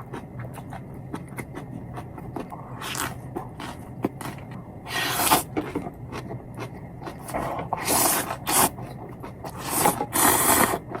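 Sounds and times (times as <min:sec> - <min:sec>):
chewing: 0:00.0 - 0:11.0
slurping noodles: 0:04.9 - 0:05.5, 0:07.2 - 0:11.0.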